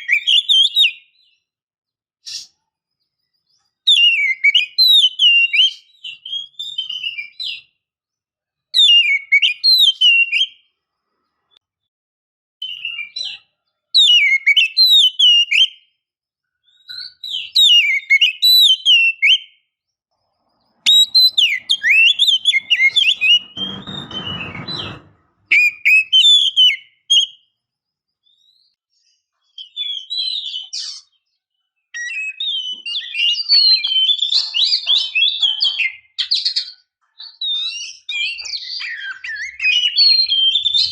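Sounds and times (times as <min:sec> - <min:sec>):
magpie-robin whistled song: 0:00.0 - 0:01.5, 0:02.2 - 0:07.8, 0:08.7 - 0:10.8, 0:12.6 - 0:16.0, 0:16.6 - 0:19.8, 0:20.8 - 0:24.7, 0:25.5 - 0:40.9
short rough noise: 0:20.9 - 0:25.7.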